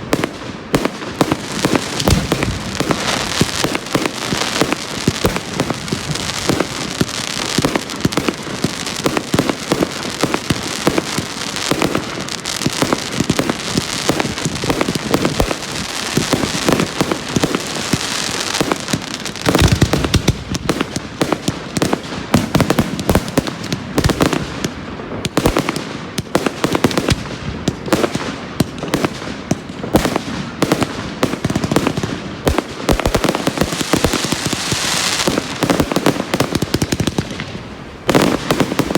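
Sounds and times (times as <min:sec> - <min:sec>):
fireworks crackling: 0:00.0 - 0:38.9
firework bang: 0:01.2 - 0:08.4.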